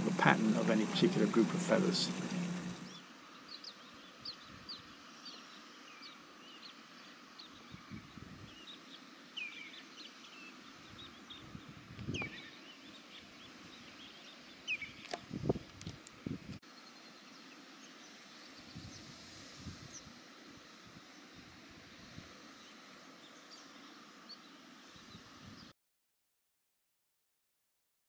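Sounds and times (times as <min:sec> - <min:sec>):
birds chirping: 0:00.0 - 0:07.9, 0:08.5 - 0:15.2
faint steady hiss: 0:00.0 - 0:25.7.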